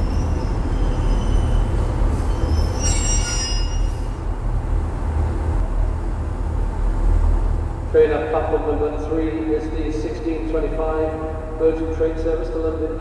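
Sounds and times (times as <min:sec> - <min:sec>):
train wheels squealing: 0:00.0 - 0:04.2
low rumble of trains: 0:00.0 - 0:13.0.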